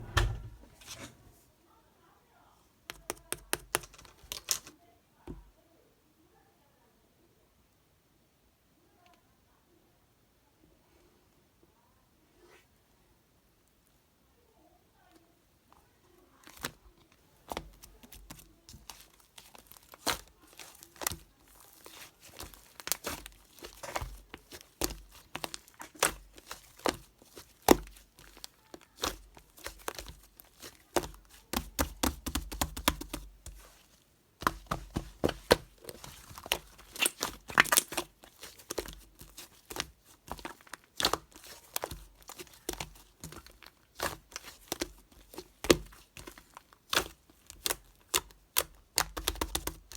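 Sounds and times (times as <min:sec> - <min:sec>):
modelling clay squeezed by hand: 0:16.4 - 0:49.9.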